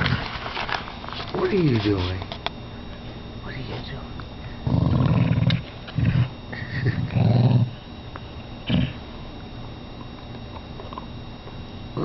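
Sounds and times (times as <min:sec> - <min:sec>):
dog growling: 0:00.0 - 0:00.4, 0:04.6 - 0:07.8, 0:08.6 - 0:09.1.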